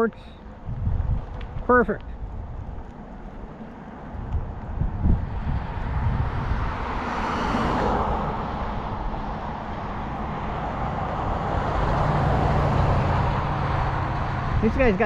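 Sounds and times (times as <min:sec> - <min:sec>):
vehicle approaching: 0:00.0 - 0:15.0
car driving past: 0:02.8 - 0:14.6.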